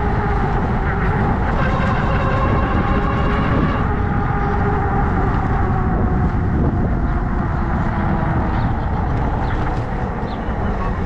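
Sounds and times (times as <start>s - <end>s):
electric motor whine: 0.0s - 8.2s
wind rumble on microphone: 0.0s - 11.0s.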